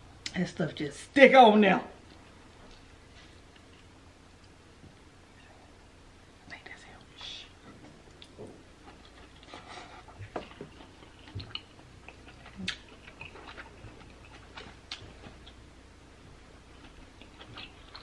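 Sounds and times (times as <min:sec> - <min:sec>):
person chewing wet mouth smacks: 0:08.1 - 0:15.6.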